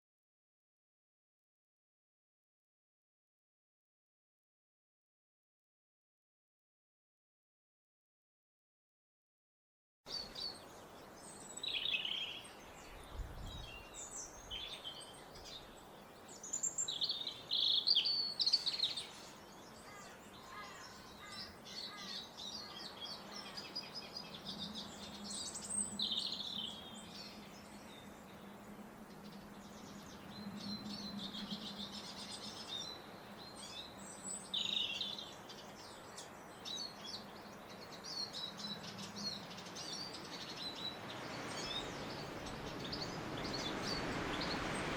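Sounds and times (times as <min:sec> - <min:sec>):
birds chirping and trilling: 0:10.1 - 0:44.9.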